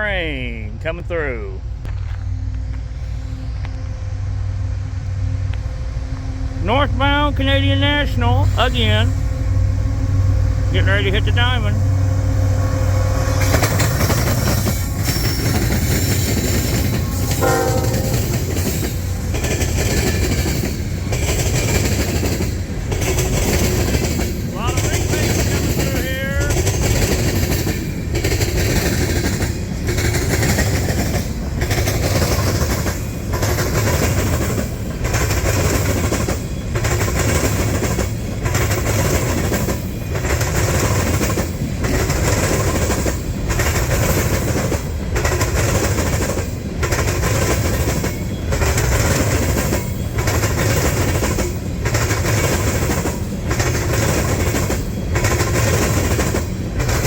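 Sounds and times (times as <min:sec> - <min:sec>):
train wheels clattering over crossing: 0:08.4 - 0:57.0.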